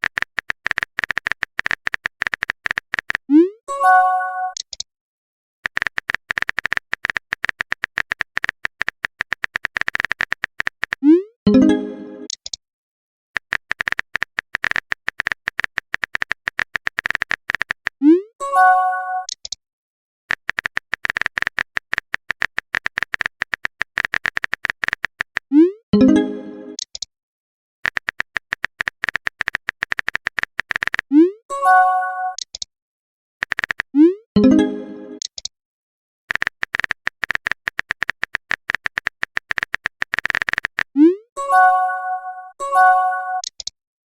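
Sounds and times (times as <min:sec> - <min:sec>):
phone keyboard typing clicks: 0:00.0 - 0:03.3, 0:04.5 - 0:04.8, 0:05.6 - 0:11.1, 0:13.4 - 0:18.0, 0:19.2 - 0:19.6, 0:20.3 - 0:27.1, 0:27.8 - 0:31.1, 0:32.3 - 0:32.7, 0:33.4 - 0:35.5, 0:36.3 - 0:41.0, 0:43.4 - 0:43.7
message chime: 0:03.7 - 0:04.6, 0:11.5 - 0:12.3, 0:18.4 - 0:19.3, 0:26.0 - 0:26.8, 0:31.5 - 0:32.4, 0:34.4 - 0:35.2, 0:41.4 - 0:43.4.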